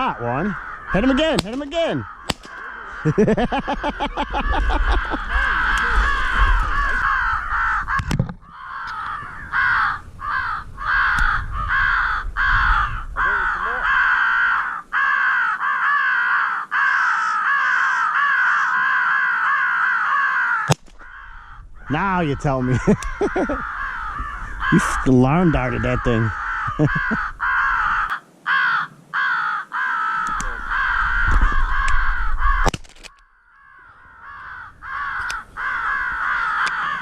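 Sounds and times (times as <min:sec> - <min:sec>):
crows cawing: 0:00.0 - 0:37.0.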